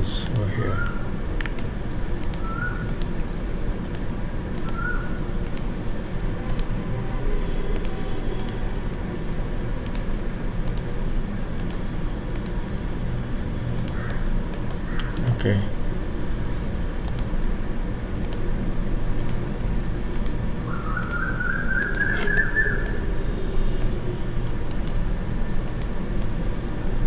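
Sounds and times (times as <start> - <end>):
low background hum: 0.0 - 27.0
computer keyboard keys clicking: 1.4 - 3.2, 3.8 - 4.8, 5.4 - 6.8, 7.7 - 9.0, 9.8 - 12.9, 13.8 - 15.2, 17.0 - 18.4, 19.2 - 19.4, 20.1 - 20.4, 21.0 - 21.2, 21.8 - 23.0, 24.6 - 25.0, 25.6 - 26.4.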